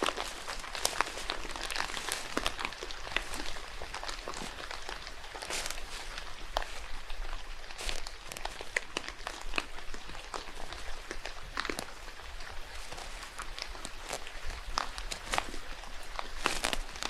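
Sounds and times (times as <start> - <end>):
rain falling in forest: 0.0 - 17.0
raindrops ticking on leaves: 0.0 - 17.0.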